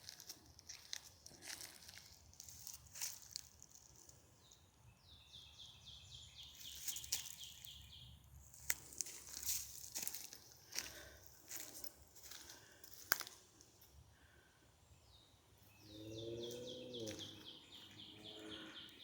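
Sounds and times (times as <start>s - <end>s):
faint crunching and rustling: 0.0s - 4.7s, 6.6s - 7.8s, 8.4s - 14.4s
small bird singing trill: 4.4s - 8.2s, 15.0s - 19.0s.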